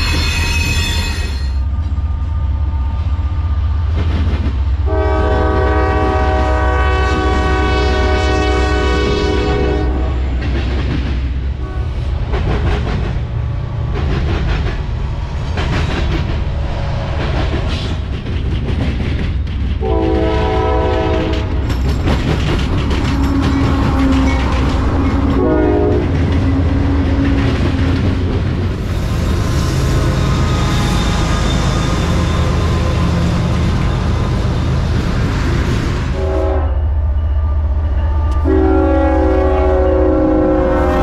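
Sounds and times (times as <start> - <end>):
freight train rumbling past: 0.0 - 41.0
train air horn blasts: 4.9 - 10.2, 11.6 - 12.1, 19.8 - 21.6, 25.3 - 26.2, 36.1 - 36.9, 38.3 - 41.0.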